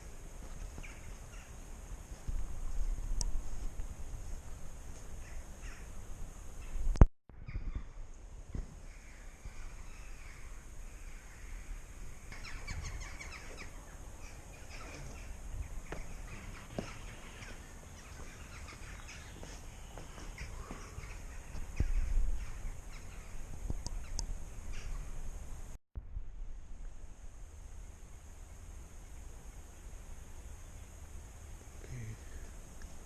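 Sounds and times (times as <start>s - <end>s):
birds calling: 0.0s - 1.6s, 5.2s - 6.0s, 6.6s - 25.4s
low rumble on microphone: 20.3s - 30.8s.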